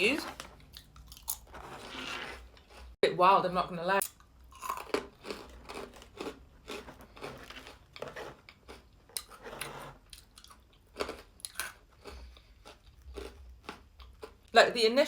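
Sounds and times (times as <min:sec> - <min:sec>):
crunchy chewing: 0:04.5 - 0:14.4.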